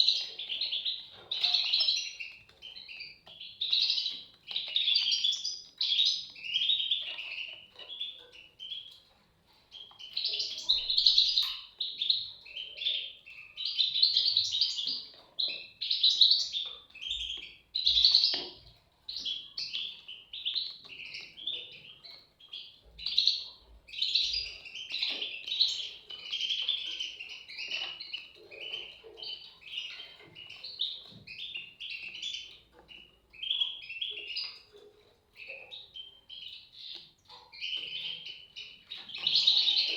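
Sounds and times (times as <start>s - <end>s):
bird chicks chirping: 0.0s - 39.9s.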